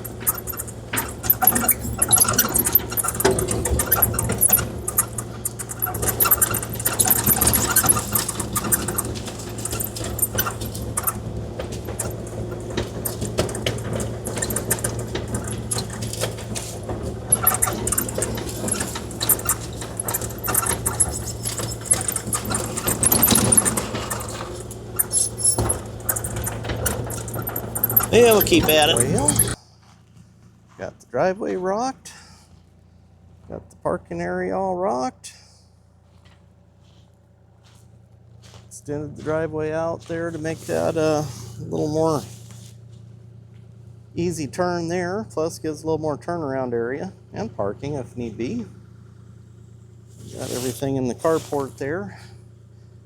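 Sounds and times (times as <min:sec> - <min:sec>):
gravel rattling and scraping: 0:00.0 - 0:29.6, 0:36.1 - 0:53.0
excavator diesel engine running: 0:00.0 - 0:53.0.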